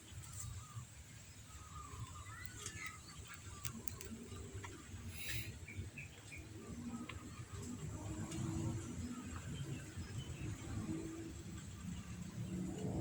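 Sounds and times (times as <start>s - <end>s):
bird chirping: 0.3s - 4.5s
sharp clicks: 3.6s - 4.2s.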